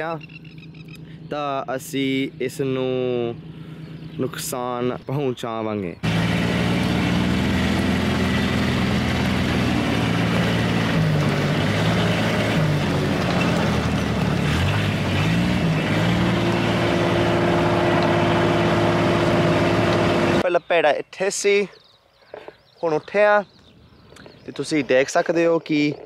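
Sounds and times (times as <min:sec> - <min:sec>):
utility vehicle engine running: 0:02.1 - 0:05.0, 0:06.0 - 0:20.4.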